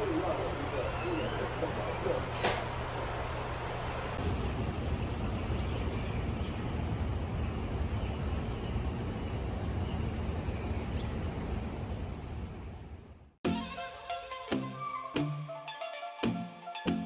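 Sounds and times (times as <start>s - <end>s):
low outdoor rumble: 0.0s - 13.4s.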